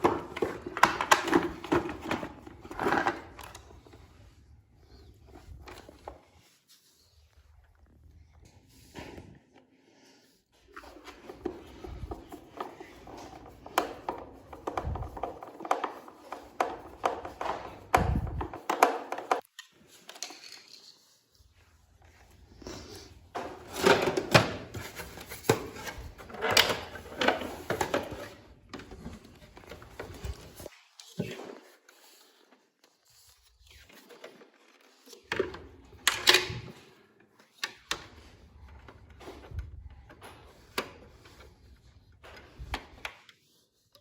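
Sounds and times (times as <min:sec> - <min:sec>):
hard parts knocking and rattling: 0:11.2 - 0:19.4, 0:23.3 - 0:30.6.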